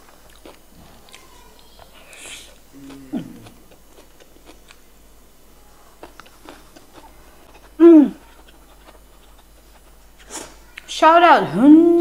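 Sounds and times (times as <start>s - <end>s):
person chewing food: 0.0s - 10.9s
short falling hum: 2.7s - 3.7s.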